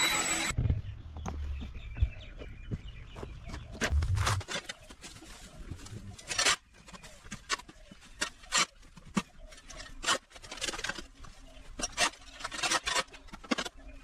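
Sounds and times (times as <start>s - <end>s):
hand tool scraping debris: 6.2s - 14.0s.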